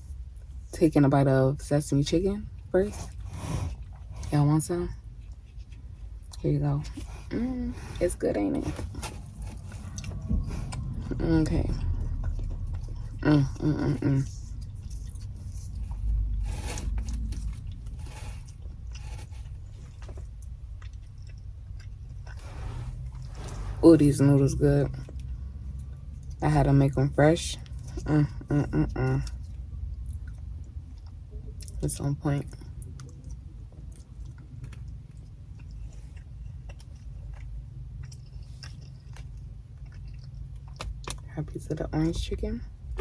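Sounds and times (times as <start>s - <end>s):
low steady hum: 0.0s - 43.0s
person chewing food: 3.0s - 4.3s, 8.8s - 23.7s, 29.2s - 31.8s, 32.6s - 41.3s.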